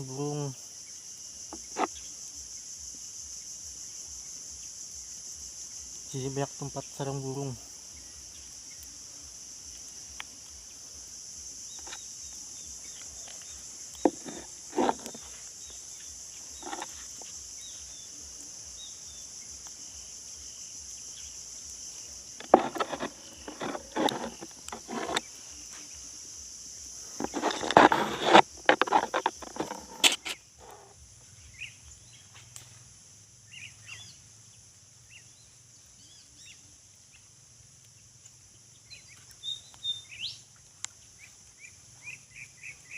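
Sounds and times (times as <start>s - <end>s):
high-pitched insect drone: 0.0s - 37.3s
rustling and knocking: 13.1s - 15.5s, 16.5s - 17.4s, 22.4s - 25.3s, 27.1s - 30.9s.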